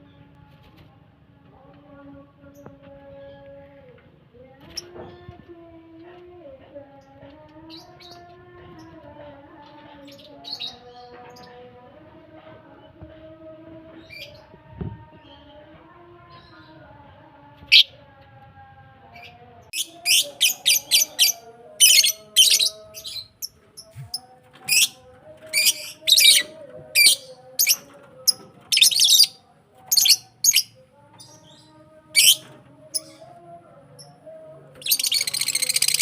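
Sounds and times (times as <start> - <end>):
lovebirds chirping: 19.8 - 33.3.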